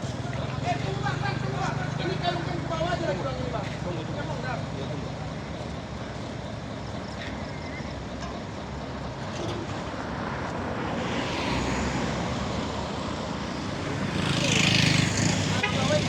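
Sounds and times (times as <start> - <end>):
heavy truck engine running: 0.0 - 10.8.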